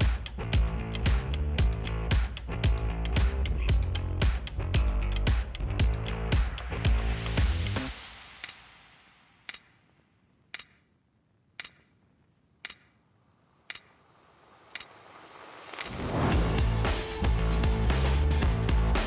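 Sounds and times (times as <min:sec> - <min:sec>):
sharp ticks: 0:09.4 - 0:09.8, 0:10.5 - 0:10.9, 0:11.6 - 0:12.0, 0:12.6 - 0:13.0, 0:13.6 - 0:14.0, 0:14.7 - 0:15.0
background music: 0:16.2 - 0:19.0.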